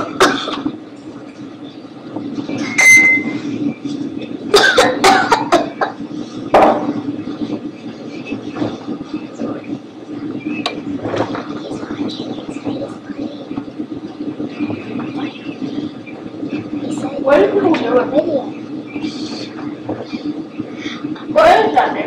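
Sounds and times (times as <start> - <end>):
airliner cabin drone: 0.0 - 22.0
brief tone: 2.6 - 3.4.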